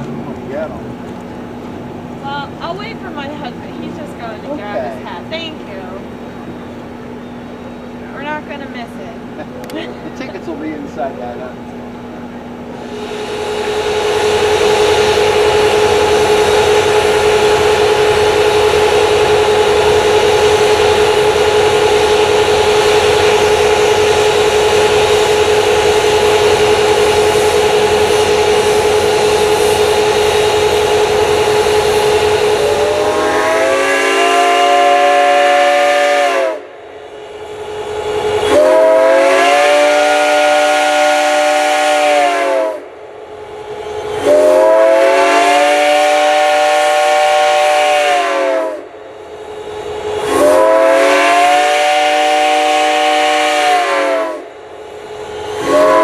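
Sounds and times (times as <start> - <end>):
steam hissing: 12.7 - 56.0
steam whistle chord blasts: 12.8 - 43.0, 43.8 - 56.0.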